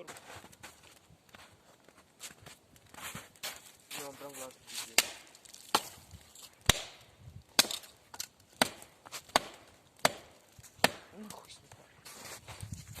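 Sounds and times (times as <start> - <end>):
wood chopping strikes: 4.8 - 11.5.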